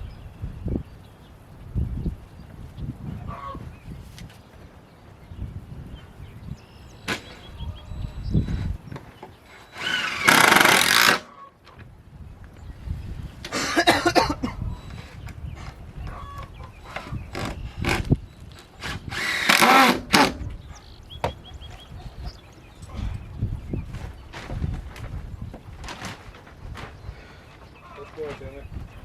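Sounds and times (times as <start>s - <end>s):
wind rumbling on microphone: 0.0s - 29.0s
power drill running: 9.5s - 11.2s, 18.8s - 20.4s.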